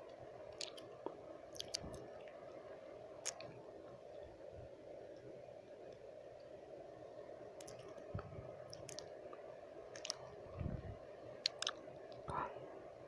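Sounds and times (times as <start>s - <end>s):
low background noise: 0.0s - 13.0s
tongue and lip clicks: 0.5s - 0.9s, 1.5s - 2.1s, 7.6s - 9.1s, 10.0s - 10.3s, 11.4s - 12.3s.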